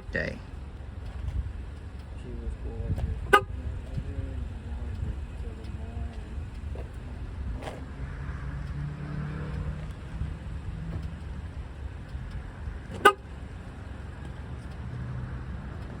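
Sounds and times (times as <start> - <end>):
vehicle rumble with hum: 0.0 - 16.0.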